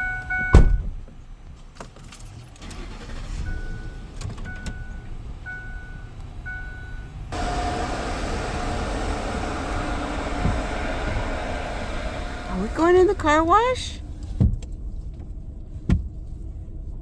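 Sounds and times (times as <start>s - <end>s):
car warning chime beeping: 0.0s - 0.9s, 3.5s - 9.4s
car door slamming: 0.5s - 1.0s, 7.4s - 12.8s
car engine starting and running: 2.2s - 16.6s.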